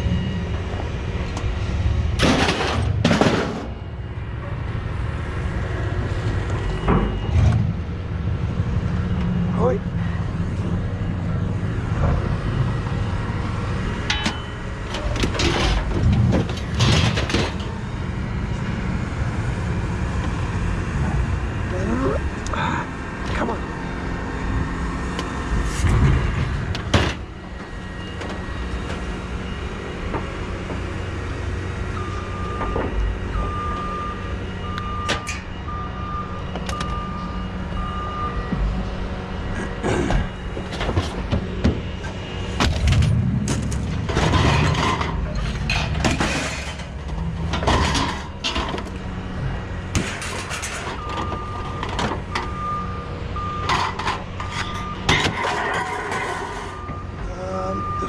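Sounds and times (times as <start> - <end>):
reversing alarm beeping: 0.0 - 2.2, 3.7 - 15.7, 23.6 - 58.0
knocks and clatter: 2.2 - 3.8, 14.1 - 17.8, 40.0 - 49.0.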